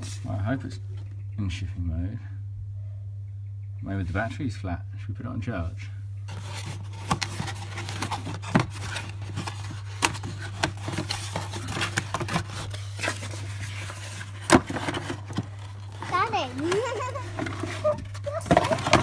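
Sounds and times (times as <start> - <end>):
steady low hum: 0.0 - 19.0
objects clicking and scraping: 6.3 - 19.0.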